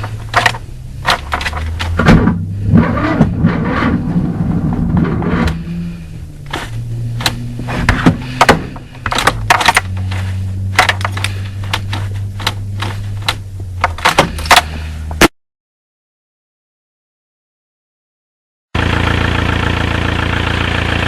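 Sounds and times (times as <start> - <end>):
engine clicks and pops: 0.0 - 15.3
engine running unevenly: 0.0 - 15.3, 18.8 - 21.0.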